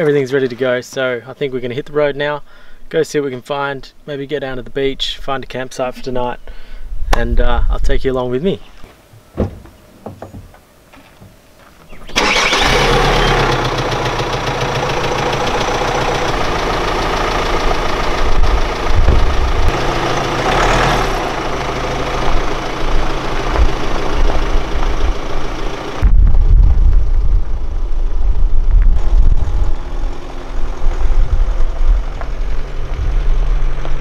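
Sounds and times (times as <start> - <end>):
car engine starting and idling: 12.1 - 34.0.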